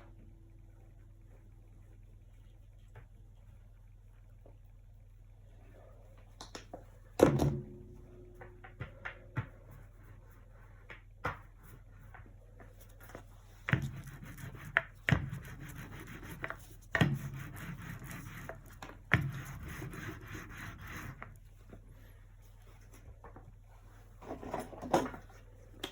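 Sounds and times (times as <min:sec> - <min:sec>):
painting tool scraping surface: 0:13.1 - 0:21.4.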